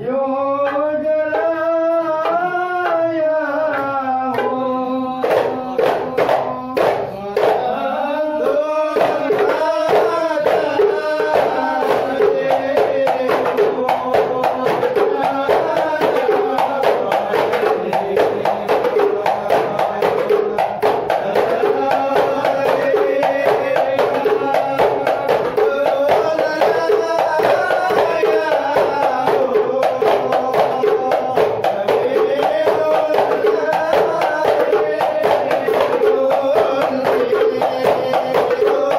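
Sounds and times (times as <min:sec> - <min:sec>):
men chanting: 0:00.0 - 0:38.9
frame drums beating fast: 0:00.6 - 0:38.9.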